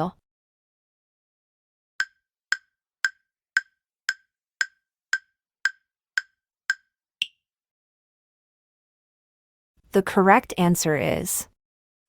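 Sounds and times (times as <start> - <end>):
countdown timer ticking: 2.0 - 7.4.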